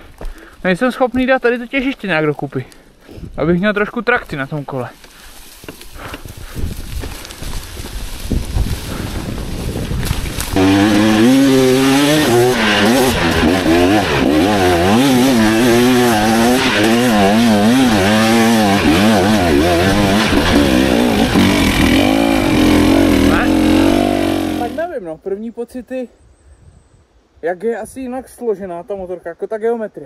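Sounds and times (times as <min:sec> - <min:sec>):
two-stroke motorcycle engine revving: 0:10.6 - 0:24.8.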